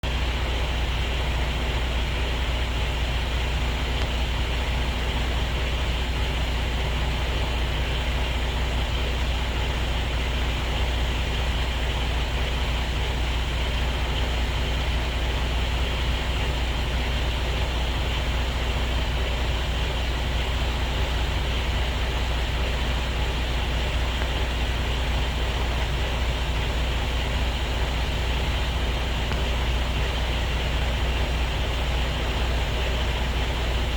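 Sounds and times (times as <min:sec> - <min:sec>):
diesel truck engine idling: 0:00.0 - 0:33.9.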